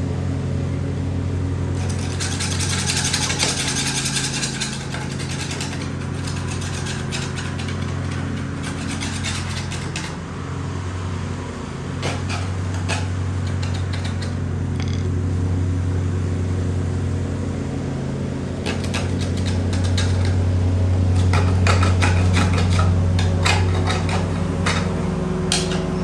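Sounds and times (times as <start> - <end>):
low mechanical hum: 0.0 - 26.0
scraping and rasping: 1.7 - 10.4, 11.2 - 15.5, 18.4 - 26.0.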